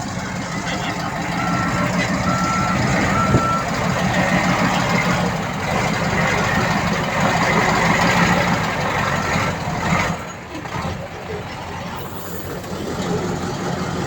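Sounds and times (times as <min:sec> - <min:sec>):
heavy diesel engine running: 0:00.0 - 0:14.0
reversing beeper: 0:00.1 - 0:05.1.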